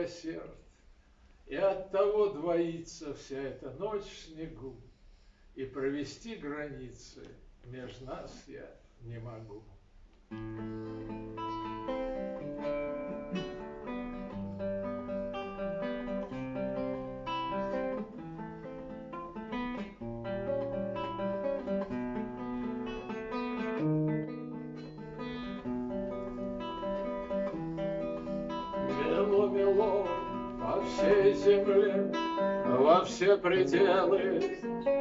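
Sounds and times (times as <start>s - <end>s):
acoustic guitar playing: 10.3s - 35.0s.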